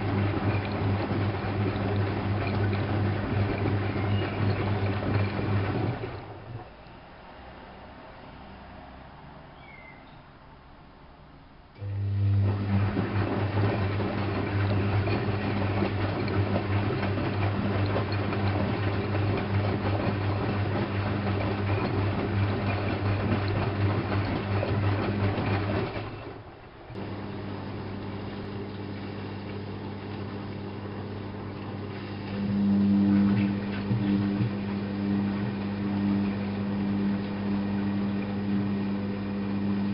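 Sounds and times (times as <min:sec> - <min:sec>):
drain pump humming: 0:00.0 - 0:07.7, 0:11.8 - 0:39.9
water rushing: 0:12.4 - 0:38.8.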